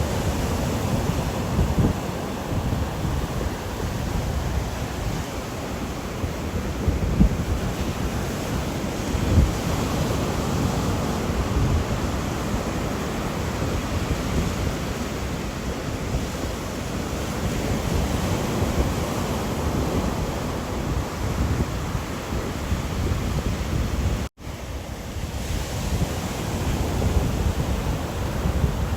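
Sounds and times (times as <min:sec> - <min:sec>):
rushing wind: 0:00.0 - 0:28.9.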